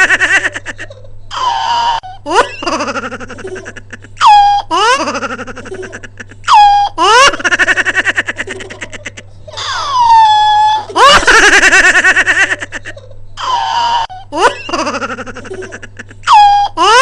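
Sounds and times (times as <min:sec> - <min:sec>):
bird mimicking laughter: 0:04.2 - 0:04.8.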